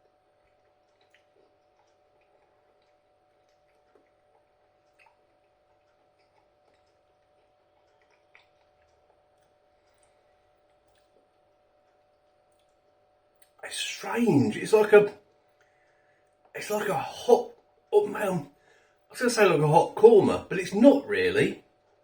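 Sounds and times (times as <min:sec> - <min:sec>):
soft eating clicks: 0:00.0 - 0:13.6
faint steady hum: 0:00.0 - 0:22.0.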